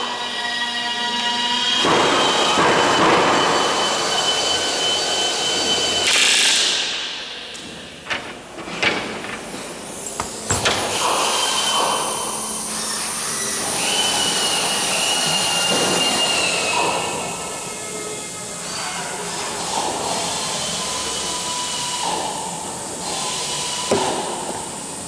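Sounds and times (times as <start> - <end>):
sharp knocks and clicks: 7.6 - 11.9.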